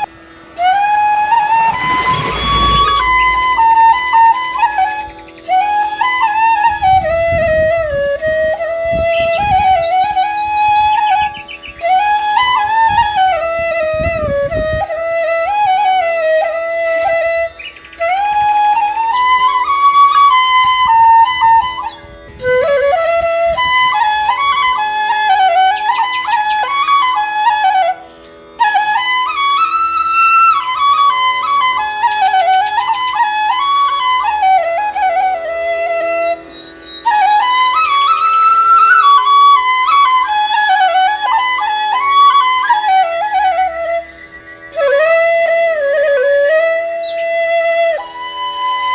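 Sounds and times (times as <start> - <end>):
solo flute melody: 0.0 - 48.9
steady drone: 0.9 - 4.6.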